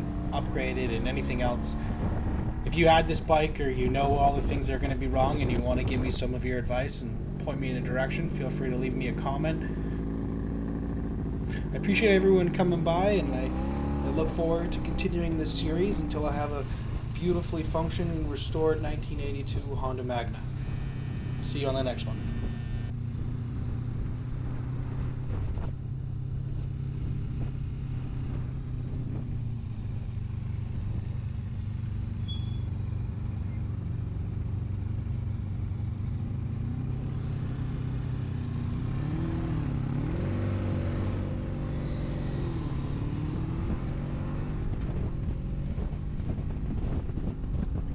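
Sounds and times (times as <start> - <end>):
motorcycle engine running: 0.0 - 47.8.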